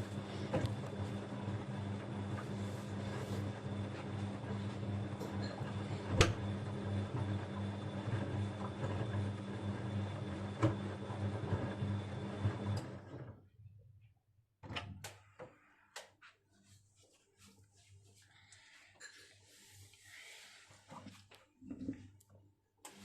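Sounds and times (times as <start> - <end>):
washing machine motor hum: 0.0 - 13.7
washing machine knocks: 6.1 - 6.5.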